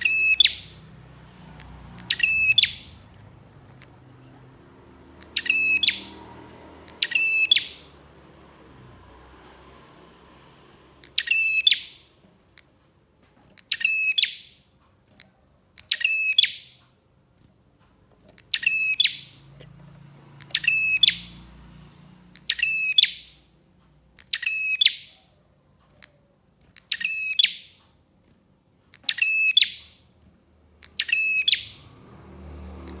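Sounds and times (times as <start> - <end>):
bird calling rapid notes: 0.0 - 8.4, 10.6 - 12.7, 13.6 - 14.6, 18.3 - 19.6, 20.3 - 21.5, 22.3 - 23.5, 26.8 - 27.8, 29.0 - 30.0, 30.8 - 31.8.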